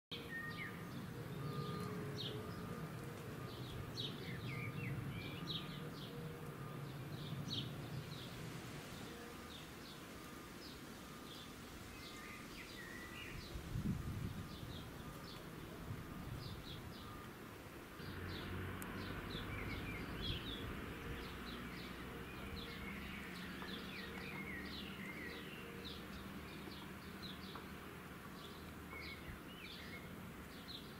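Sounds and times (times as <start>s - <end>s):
small birds chirping: 18.0s - 30.9s.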